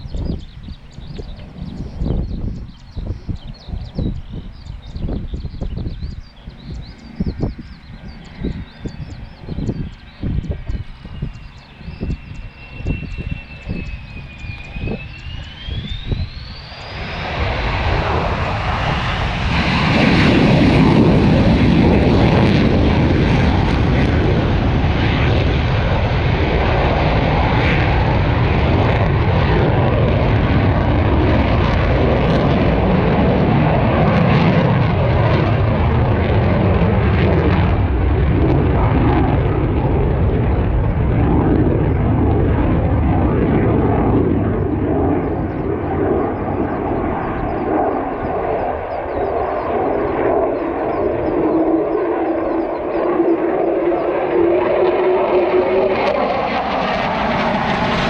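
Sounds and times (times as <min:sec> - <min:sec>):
military aircraft engine roar: 0:00.0 - 0:58.0.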